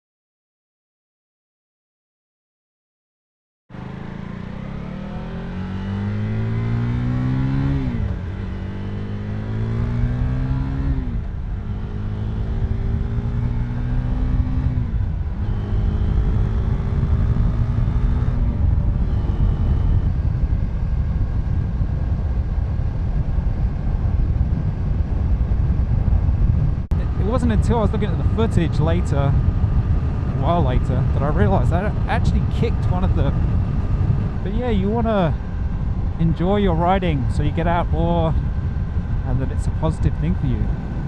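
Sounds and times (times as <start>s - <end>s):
motorcycle engine accelerating: 3.7s - 41.0s
wind rush: 16.4s - 41.0s.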